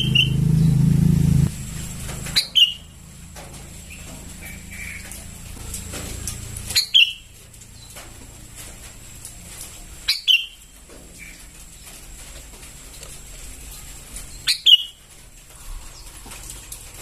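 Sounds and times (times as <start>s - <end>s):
bird sharp falling calls: 0.0s - 0.9s, 2.3s - 2.9s.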